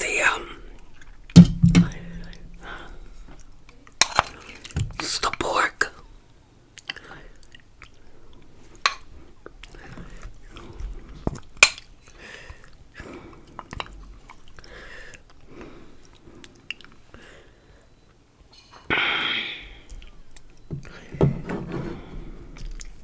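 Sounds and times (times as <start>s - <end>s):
wet chewing: 6.0s - 18.2s, 19.7s - 21.2s, 22.0s - 23.0s
mouth clicks: 18.9s - 21.0s.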